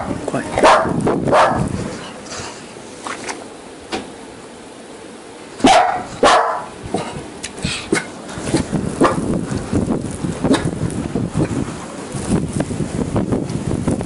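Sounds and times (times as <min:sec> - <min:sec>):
dog barking: 0:00.6 - 0:01.7, 0:05.6 - 0:06.7.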